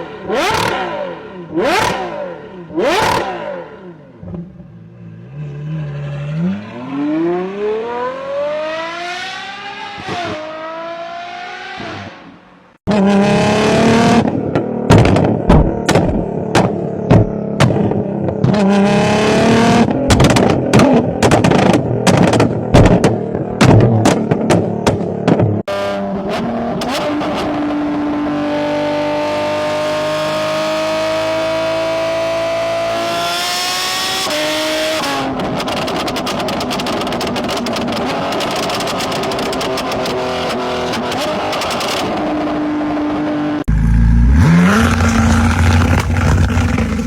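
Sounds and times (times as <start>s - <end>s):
engine revving with crackling pops: 0.3s - 1.0s, 1.6s - 2.1s, 13.6s - 25.7s, 33.9s - 42.5s, 43.6s - 47.0s
engine accelerating through gears: 43.6s - 47.0s.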